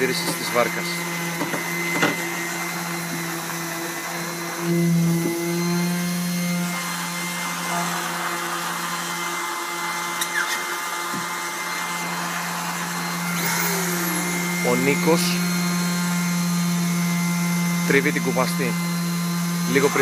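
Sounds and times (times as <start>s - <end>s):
small electric motor humming: 0.0s - 20.0s.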